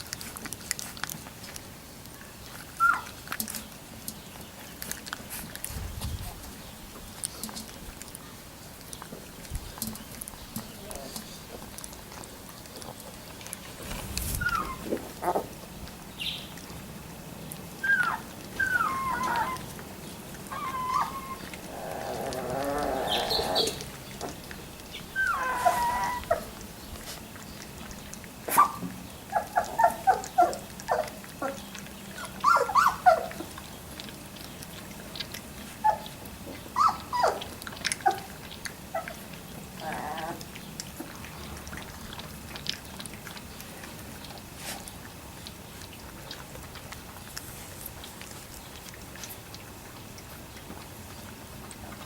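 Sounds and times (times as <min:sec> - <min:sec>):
puppies whimpering and squeaking: 0:02.6 - 0:03.3, 0:14.3 - 0:15.5, 0:17.8 - 0:46.0.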